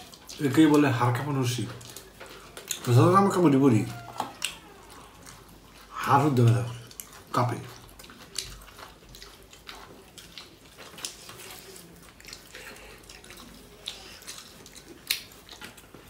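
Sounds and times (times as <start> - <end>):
wet chewing mouth sounds: 0.0 - 16.0.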